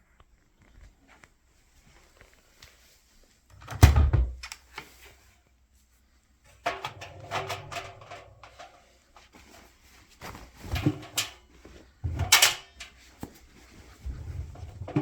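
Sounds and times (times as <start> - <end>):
clattering knocks and scraping: 6.5 - 9.7, 10.3 - 13.1, 13.7 - 15.0.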